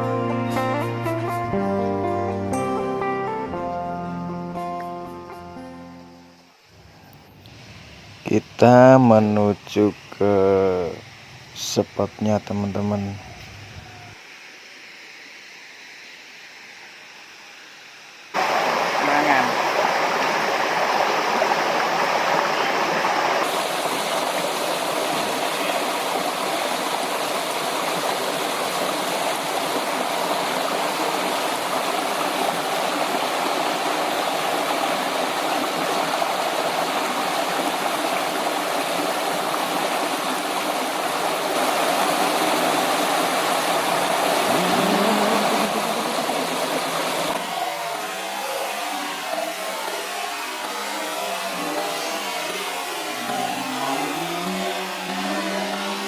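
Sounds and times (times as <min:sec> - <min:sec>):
river rushing over rocks: 0:18.4 - 0:48.0.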